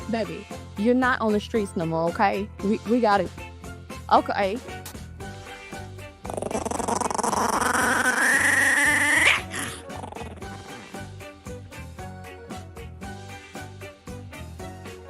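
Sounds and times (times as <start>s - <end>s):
background music with a beat: 0.0s - 6.2s, 10.3s - 15.0s
puppy growling cry: 6.2s - 11.0s.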